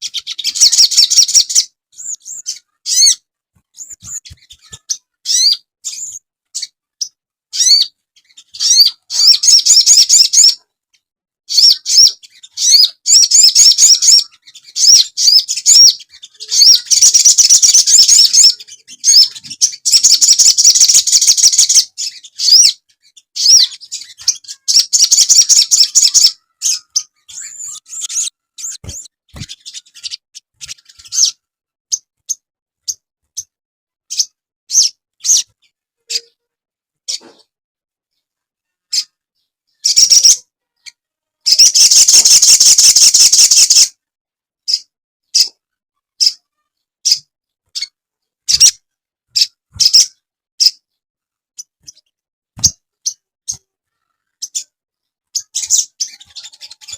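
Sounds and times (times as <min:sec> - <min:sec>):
bird chattering trills: 0:11.5 - 0:22.7, 0:23.4 - 0:31.4, 0:39.8 - 0:40.4, 0:41.5 - 0:43.9.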